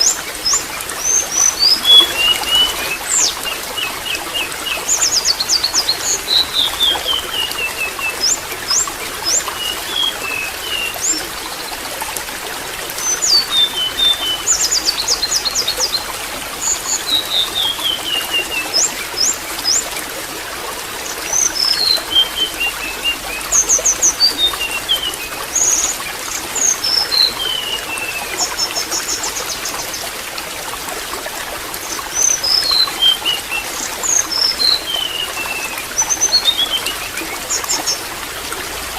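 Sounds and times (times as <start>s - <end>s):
small birds chirping: 0.0s - 11.7s
water trickling: 0.0s - 38.9s.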